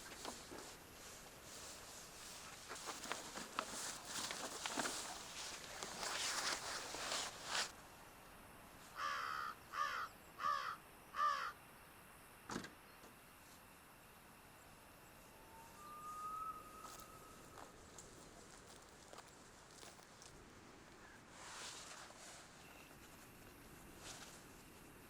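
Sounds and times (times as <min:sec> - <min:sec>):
crow cawing: 0:09.0 - 0:11.6.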